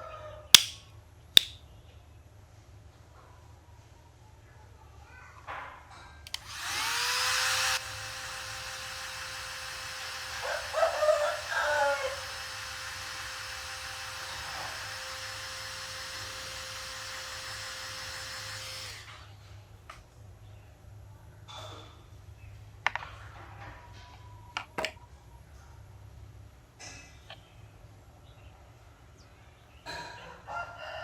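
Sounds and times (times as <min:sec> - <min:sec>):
hot air gun fan whine: 0:00.6 - 0:00.8, 0:06.3 - 0:19.4.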